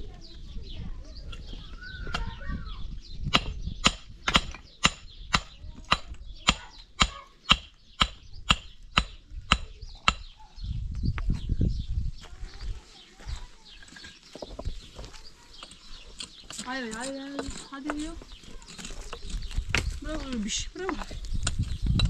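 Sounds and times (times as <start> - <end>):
hand tool striking hard: 3.3 - 10.3.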